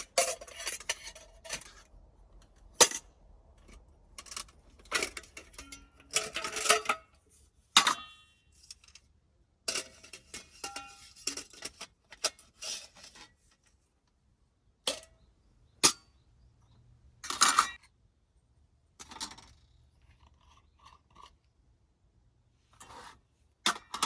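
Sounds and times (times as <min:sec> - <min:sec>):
camping gear clinking: 0:09.7 - 0:13.6
rustling scrapes: 0:22.6 - 0:23.4.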